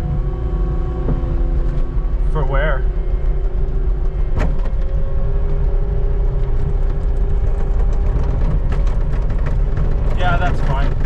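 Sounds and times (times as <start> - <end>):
constant mechanical whine: 0.0 - 11.0
skid steer engine running: 0.0 - 11.0.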